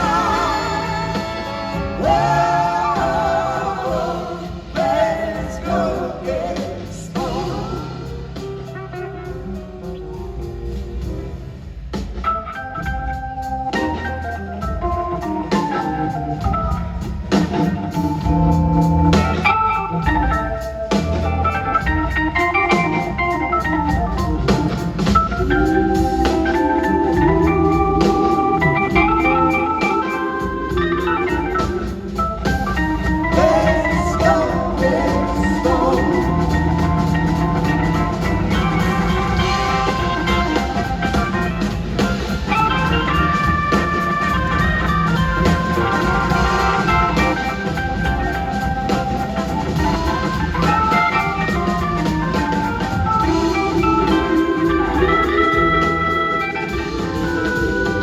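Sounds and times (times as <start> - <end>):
bass: 0.0 - 58.0
drums: 0.0 - 58.0
organ: 12.5 - 58.0.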